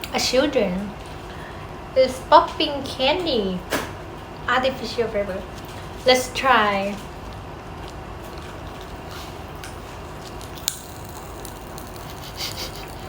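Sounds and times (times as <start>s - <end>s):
popping candy crackling: 7.3s - 13.0s.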